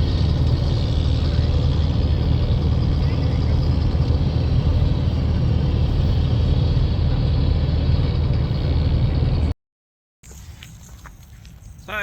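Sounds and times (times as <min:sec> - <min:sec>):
road rumble: 0:00.0 - 0:09.6, 0:10.2 - 0:12.0
vehicle engine: 0:00.0 - 0:09.6.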